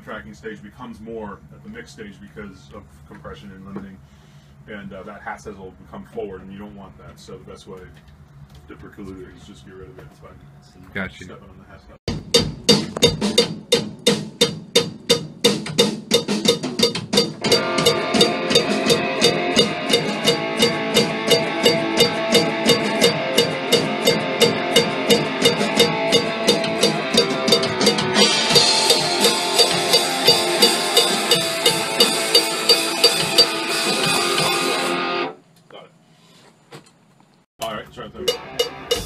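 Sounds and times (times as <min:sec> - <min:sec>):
drum kit playing: 0:12.1 - 0:35.3, 0:37.6 - 0:39.0
band with guitar playing: 0:16.2 - 0:35.4, 0:38.2 - 0:39.0.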